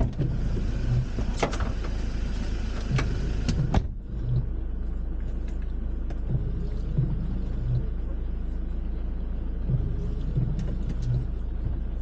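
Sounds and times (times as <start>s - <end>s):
car engine idling: 0.0s - 12.0s
car door shutting: 2.8s - 4.0s.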